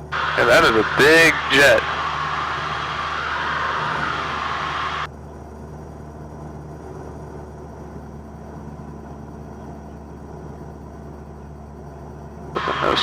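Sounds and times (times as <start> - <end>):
loud hiss: 0.0 - 5.1, 12.6 - 13.0
airplane engine and propeller drone: 0.0 - 13.0.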